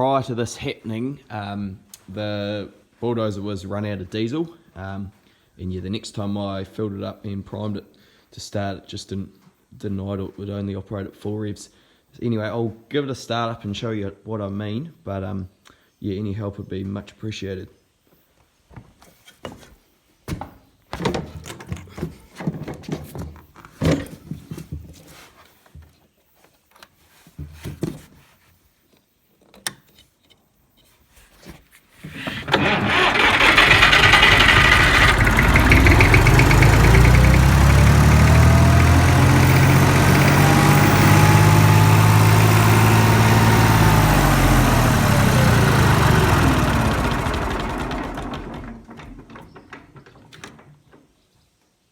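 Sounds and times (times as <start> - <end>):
diesel engine revving: 32.3 - 48.8.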